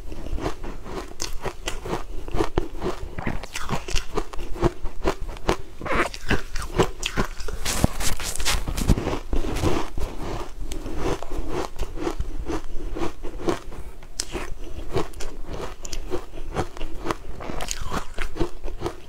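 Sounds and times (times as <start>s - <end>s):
person chewing crunchy cake: 0.0s - 19.0s.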